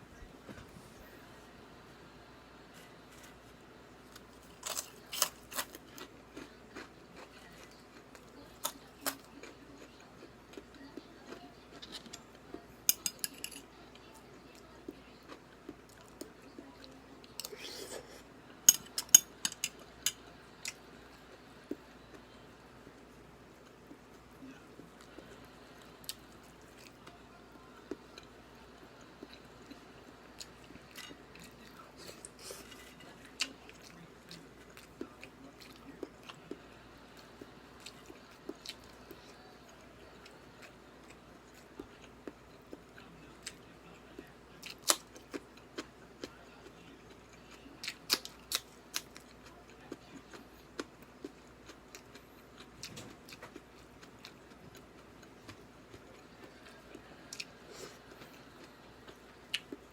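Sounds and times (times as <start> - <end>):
person chewing: 4.1 - 12.2, 44.2 - 59.9.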